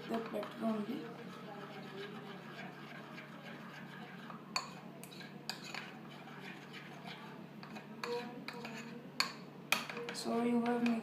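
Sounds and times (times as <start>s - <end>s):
utensil scraping a dish: 0.0s - 11.0s.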